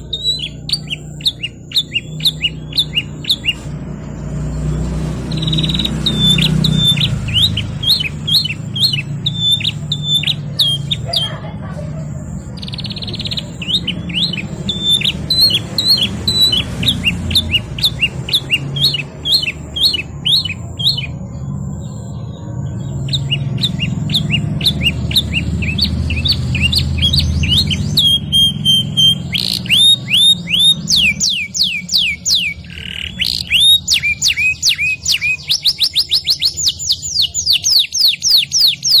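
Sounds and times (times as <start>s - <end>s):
canary singing: 0.0s - 39.0s.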